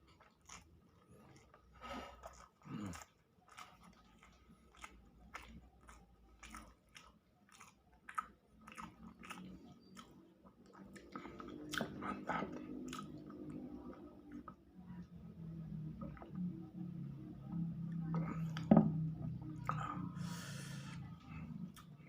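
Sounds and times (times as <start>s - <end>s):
chewing with wet mouth clicks: 0.1s - 15.1s, 21.6s - 22.0s.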